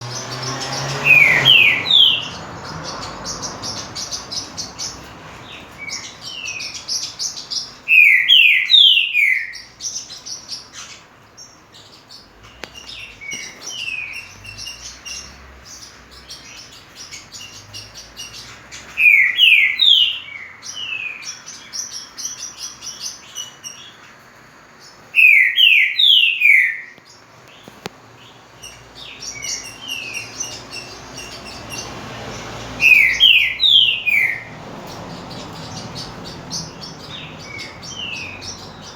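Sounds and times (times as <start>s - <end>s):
high chattering bird notes: 0.0s - 24.0s, 24.9s - 38.9s
bird whistling song: 0.4s - 2.4s, 3.0s - 11.0s, 12.4s - 24.0s, 25.1s - 27.0s, 28.6s - 31.9s, 32.8s - 34.5s, 35.5s - 38.9s.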